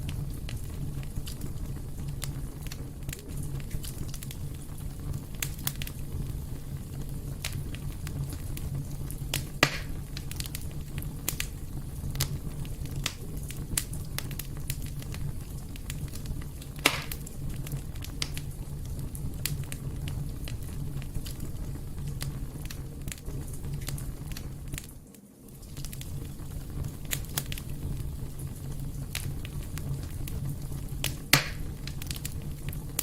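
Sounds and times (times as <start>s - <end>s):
loud fire pops: 0.0s - 33.0s
wood fire crackling: 0.0s - 33.0s.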